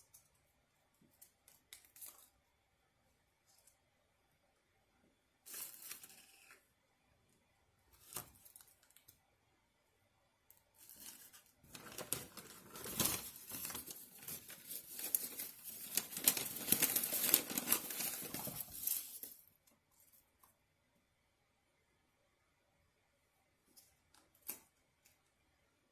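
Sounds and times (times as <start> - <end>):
food packaging crinkling: 10.8 - 19.4.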